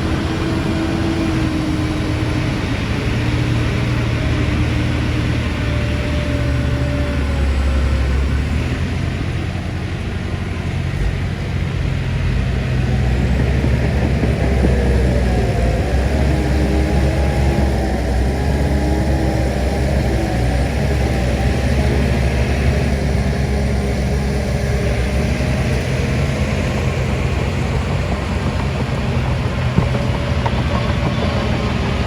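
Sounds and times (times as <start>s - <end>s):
heavy diesel engine under load: 0.0s - 32.0s.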